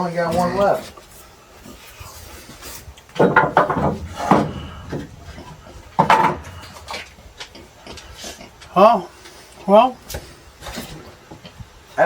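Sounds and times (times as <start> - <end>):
wooden boards clattering: 3.1 - 7.2
wooden boards knocking together: 3.1 - 7.2.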